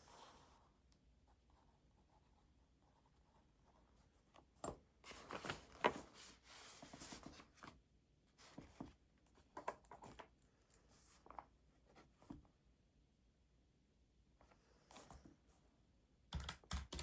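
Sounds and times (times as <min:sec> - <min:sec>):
rustling on a desk: 0:04.1 - 0:07.8, 0:08.4 - 0:12.5.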